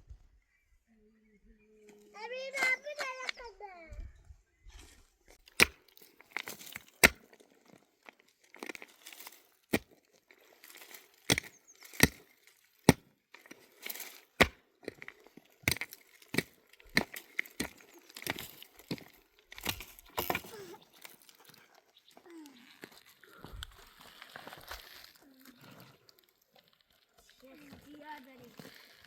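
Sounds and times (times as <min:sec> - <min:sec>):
rustling and scraping: 0:04.6 - 0:29.0
sharp wood knocks and cracks: 0:05.4 - 0:07.4, 0:10.8 - 0:21.6.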